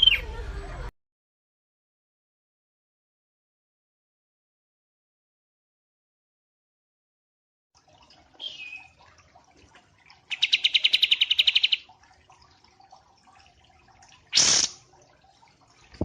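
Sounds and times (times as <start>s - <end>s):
songbird whistling and trilling: 0.0s - 0.3s, 8.4s - 8.9s, 10.3s - 11.8s.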